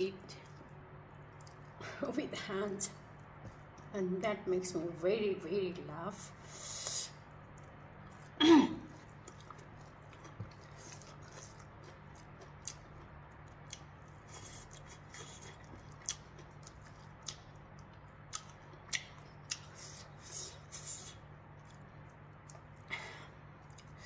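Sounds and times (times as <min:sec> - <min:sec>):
chewing and mouth sounds: 0:00.3 - 0:01.8, 0:07.1 - 0:24.0.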